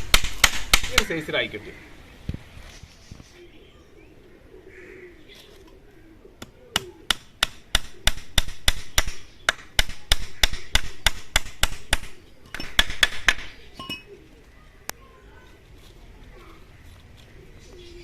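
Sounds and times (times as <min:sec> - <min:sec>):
hammer driving nails into wood: 0:00.0 - 0:01.1.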